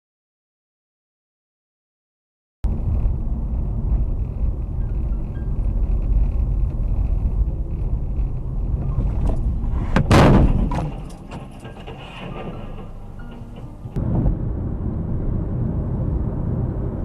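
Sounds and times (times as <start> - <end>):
vehicle road rumble: 2.6 - 17.0
loud collision crash: 9.8 - 13.3.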